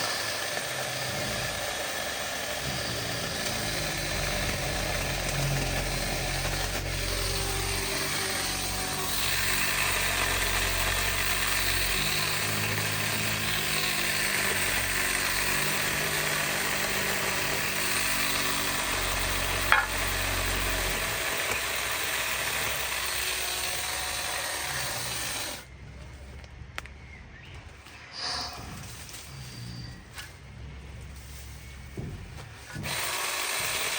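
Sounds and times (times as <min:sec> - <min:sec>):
chainsaw cutting: 0:00.0 - 0:25.7, 0:32.7 - 0:33.9.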